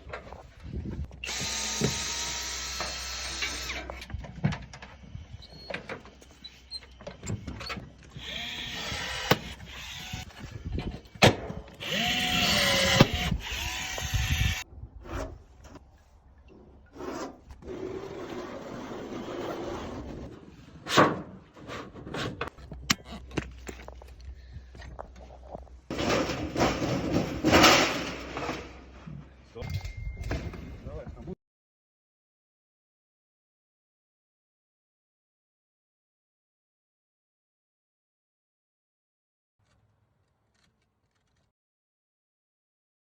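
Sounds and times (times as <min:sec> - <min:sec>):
power drill whining: 0:01.1 - 0:04.1, 0:06.4 - 0:11.1, 0:11.7 - 0:14.6.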